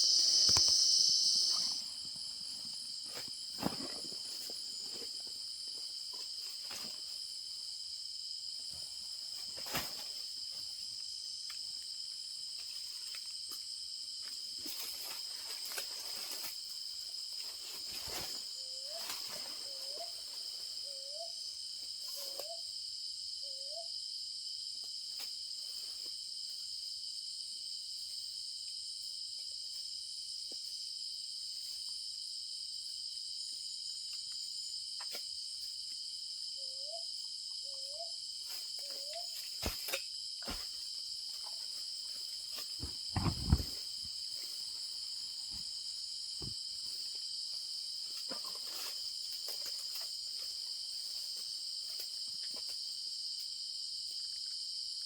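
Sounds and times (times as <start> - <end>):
owl hooting: 0.0 - 2.0
insects chorus: 0.0 - 55.0.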